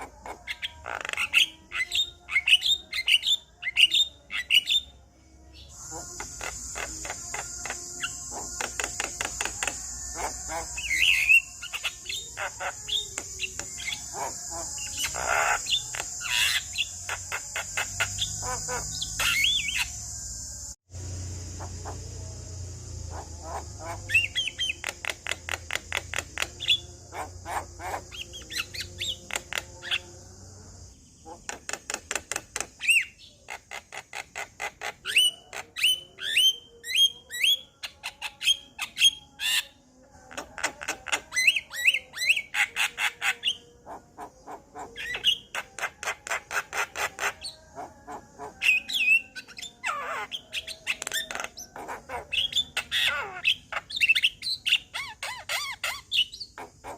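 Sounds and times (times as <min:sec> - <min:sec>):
bird singing clicking notes and whistles: 0:06.2 - 0:10.2, 0:10.8 - 0:20.0, 0:23.5 - 0:30.0, 0:31.3 - 0:33.3, 0:48.7 - 0:56.8
steady high hiss: 0:18.8 - 0:24.0.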